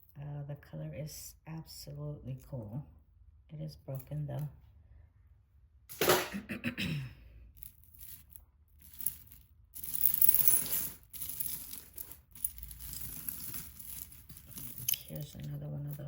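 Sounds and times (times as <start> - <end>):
rustling handling noise: 7.6 - 16.0
jewelry pieces clicking together: 8.8 - 16.0.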